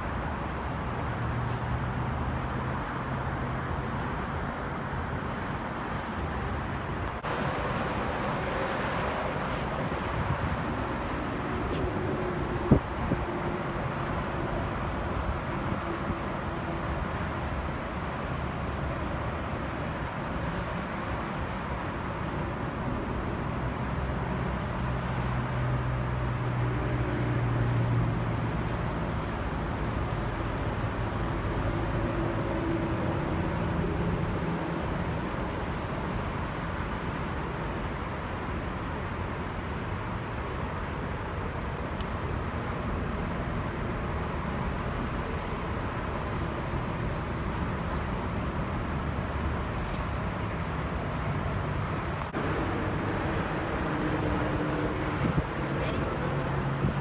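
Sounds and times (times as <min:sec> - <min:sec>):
vehicle engine rumble: 0:29.6 - 0:57.0.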